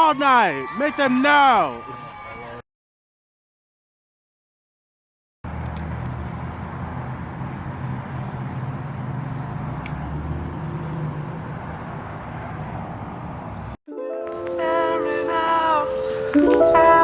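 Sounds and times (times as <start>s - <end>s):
road noise rumble: 5.4s - 13.8s
vehicle engine humming: 5.4s - 13.8s.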